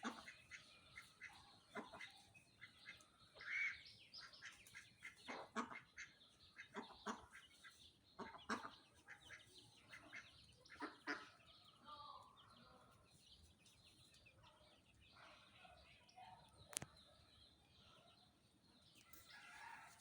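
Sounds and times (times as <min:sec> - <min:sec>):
chickens clucking: 0:00.0 - 0:11.8.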